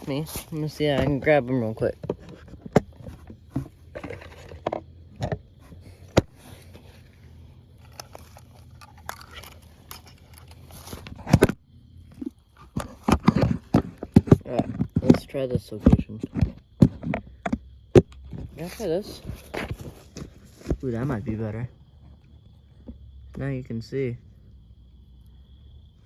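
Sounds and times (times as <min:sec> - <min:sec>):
scraping and crinkling rustle: 0:00.0 - 0:15.2, 0:18.2 - 0:21.4.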